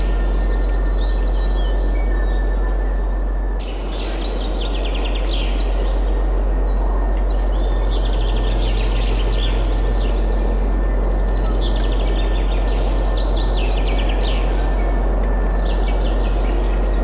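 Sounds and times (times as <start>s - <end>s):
deep low rumble: 0.0s - 3.5s.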